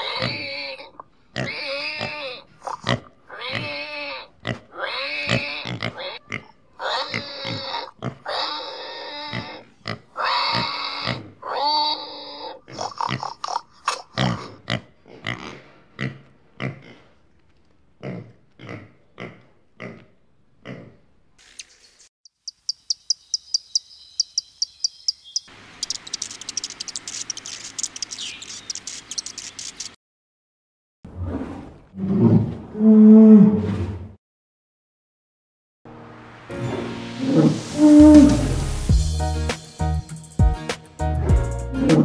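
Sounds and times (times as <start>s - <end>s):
piglets grunting: 0.0s - 17.1s
hummingbird chirping: 21.5s - 29.9s.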